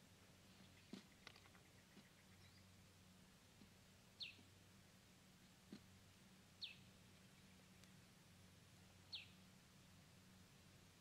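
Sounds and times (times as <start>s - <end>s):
faint low hum: 0.0s - 11.0s
bird chirping: 0.5s - 2.8s, 4.2s - 4.5s, 6.6s - 7.9s, 9.0s - 10.0s.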